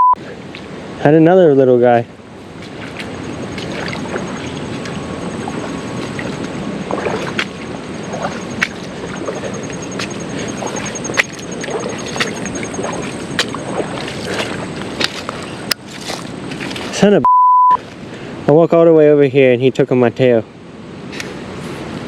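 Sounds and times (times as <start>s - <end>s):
creek water trickling: 2.1s - 17.1s.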